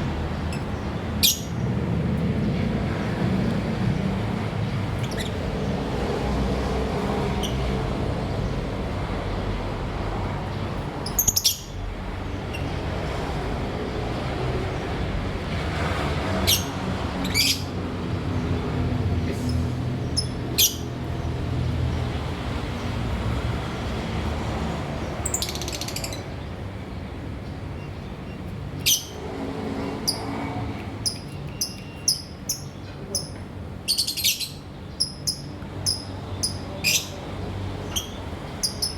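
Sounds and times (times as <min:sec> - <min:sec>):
birds chirping shrilly: 0:00.3 - 0:01.7, 0:11.0 - 0:12.9, 0:16.4 - 0:17.8, 0:19.3 - 0:21.1, 0:28.1 - 0:29.3, 0:31.0 - 0:37.2.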